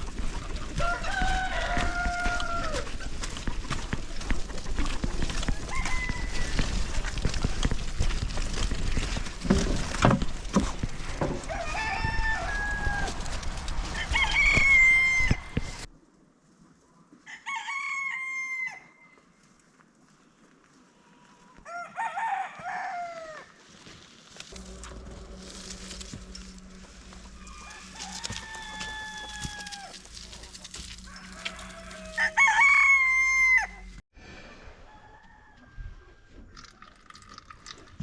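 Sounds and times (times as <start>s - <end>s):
roosters crowing: 0.0s - 8.2s, 10.6s - 15.9s, 17.3s - 19.0s, 21.6s - 23.5s, 24.5s - 34.0s.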